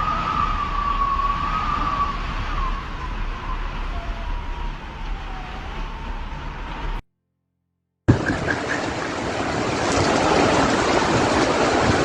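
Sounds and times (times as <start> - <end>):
siren wailing faintly: 0.0 - 7.0
traffic and street noise: 0.0 - 7.0, 8.1 - 12.0.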